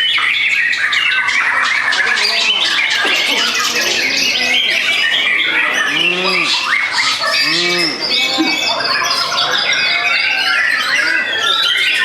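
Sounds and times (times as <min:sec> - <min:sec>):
songbirds singing: 0:00.0 - 0:12.0
lower bird call: 0:02.2 - 0:08.7.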